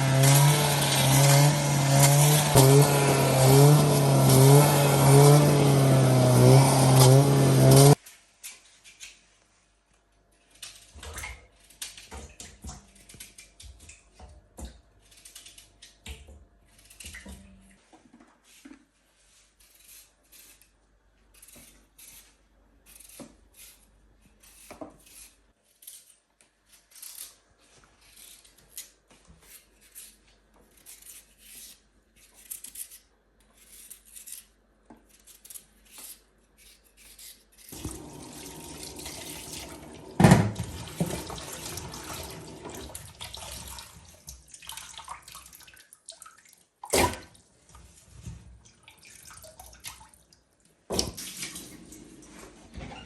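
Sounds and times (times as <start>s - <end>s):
water running: 37.8s - 47.4s.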